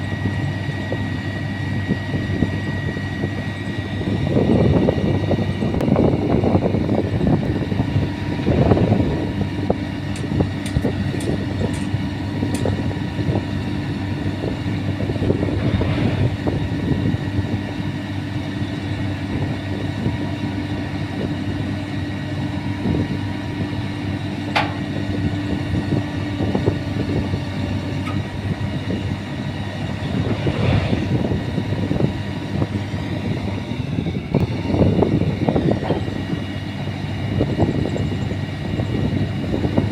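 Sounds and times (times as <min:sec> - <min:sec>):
diesel engine humming: 0:00.0 - 0:39.9
metallic rattling and clanking: 0:10.1 - 0:12.9.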